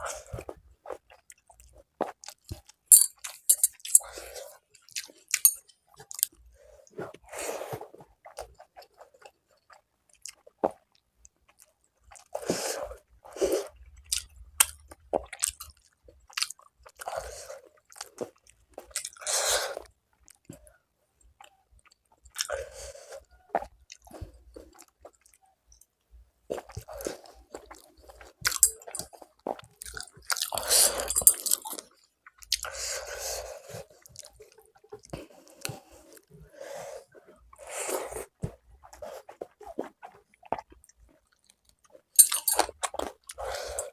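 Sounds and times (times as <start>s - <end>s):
person chewing food: 0.0s - 43.9s
wet mouth sounds: 26.5s - 33.1s.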